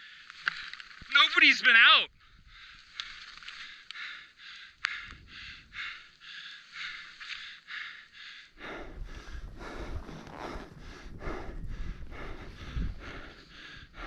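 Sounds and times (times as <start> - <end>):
person breathing hard: 2.2 - 14.0
wind rumbling on microphone: 8.6 - 14.0.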